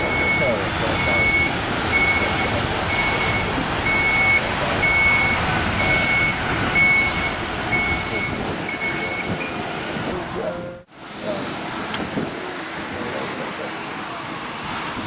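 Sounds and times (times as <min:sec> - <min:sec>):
reversing alarm beeping: 0:00.0 - 0:09.6.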